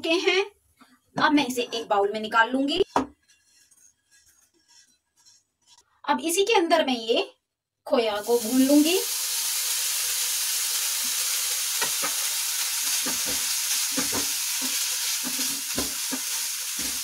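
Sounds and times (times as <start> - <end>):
wooden spatula scraping pan: 2.8 - 5.8
food sizzling in a frying pan: 8.2 - 17.0.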